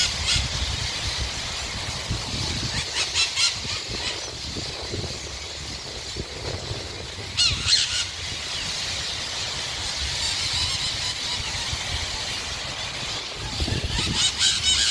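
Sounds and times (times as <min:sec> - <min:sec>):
flock of birds chattering: 0:00.0 - 0:14.9
sharp bird calls: 0:00.0 - 0:14.9.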